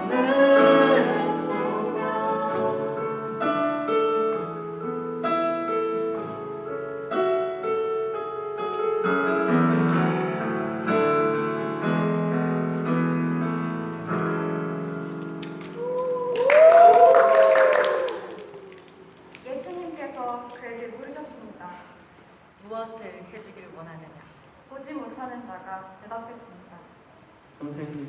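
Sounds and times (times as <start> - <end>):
slow piano chords: 0.0 - 16.7.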